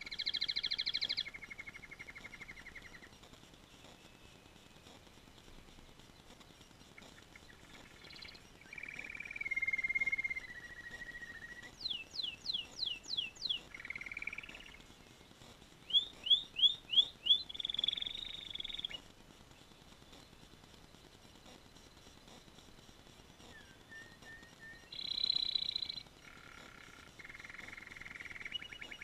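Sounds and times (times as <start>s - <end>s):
canary singing: 0.0s - 3.2s, 6.8s - 19.1s, 23.4s - 29.0s.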